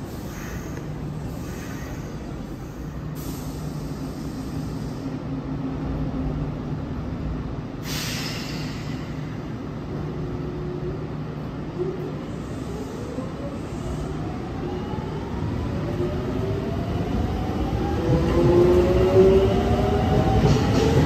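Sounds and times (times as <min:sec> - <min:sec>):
air hiss: 0:00.0 - 0:05.2, 0:07.8 - 0:09.3
electric train humming: 0:00.0 - 0:21.0.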